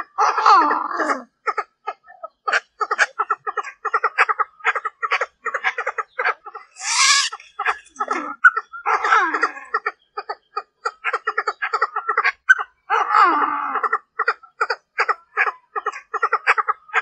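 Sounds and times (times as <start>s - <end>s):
francolin clucking calls: 1.5s - 12.8s, 13.8s - 17.0s
bird harsh rasping call: 6.7s - 7.9s
bird chattering notes: 6.8s - 8.0s.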